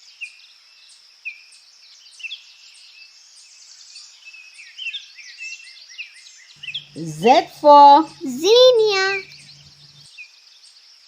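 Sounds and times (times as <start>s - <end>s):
small birds chirping: 6.6s - 10.1s.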